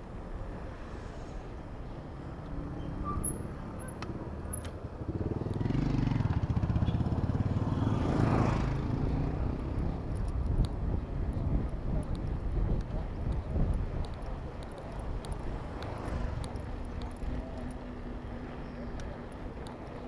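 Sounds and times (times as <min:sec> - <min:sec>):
vehicle engine passing by: 0:05.1 - 0:10.1.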